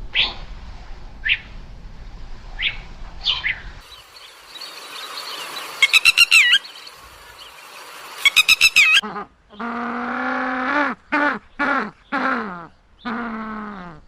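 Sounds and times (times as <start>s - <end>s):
bird squawks: 2.6s - 7.6s, 8.2s - 9.1s
bird song with wavering note: 3.8s - 9.0s.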